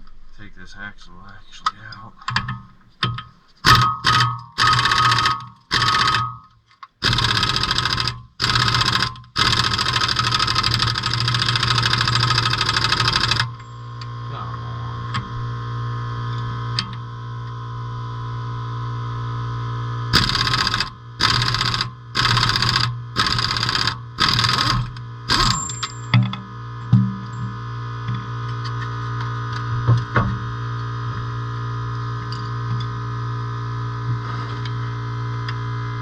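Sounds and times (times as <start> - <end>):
steady electrical hum: 0.0 - 36.0
power tool running: 3.6 - 6.4, 7.0 - 13.8, 20.1 - 27.5.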